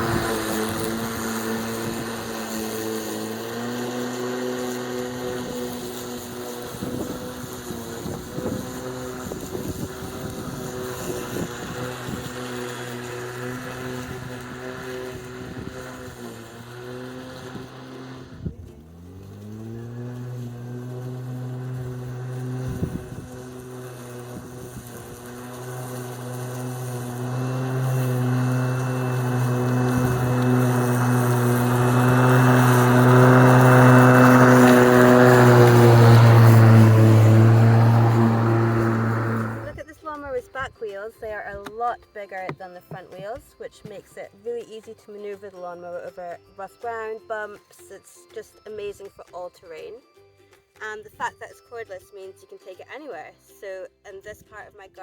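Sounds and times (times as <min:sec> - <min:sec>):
electric lawn mower running: 0:00.0 - 0:39.9.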